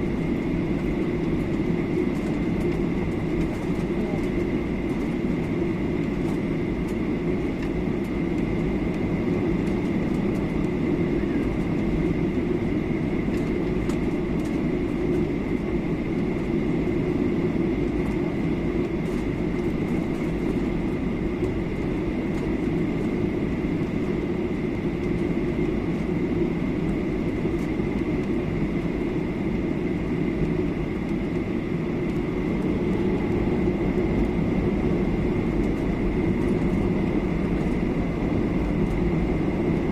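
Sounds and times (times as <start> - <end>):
airplane cabin engine rush: 0.0 - 39.9
thin steady whine: 0.0 - 39.9.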